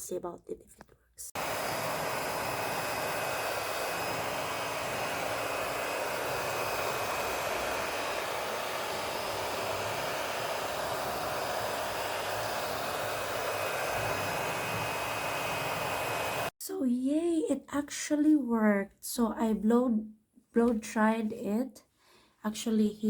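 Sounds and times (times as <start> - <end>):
hair dryer running: 1.3 - 16.5.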